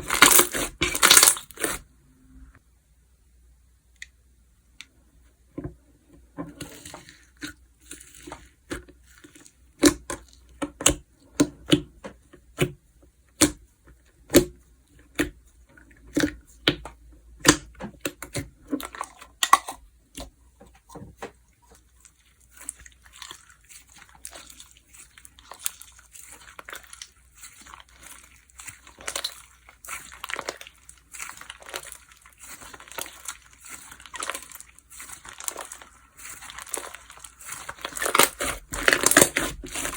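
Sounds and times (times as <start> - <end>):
slime squished by hand: 0.0 - 1.8, 21.7 - 39.9.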